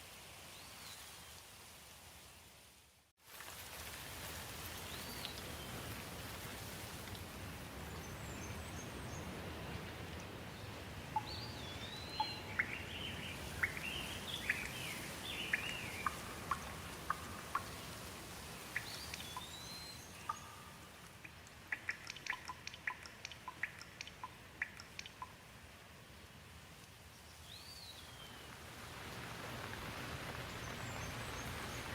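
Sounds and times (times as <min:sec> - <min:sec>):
steady rain: 0:00.0 - 0:31.9
birds chirping: 0:11.2 - 0:18.0, 0:18.7 - 0:25.3
quick sharp drips: 0:13.6 - 0:17.9, 0:18.6 - 0:25.4.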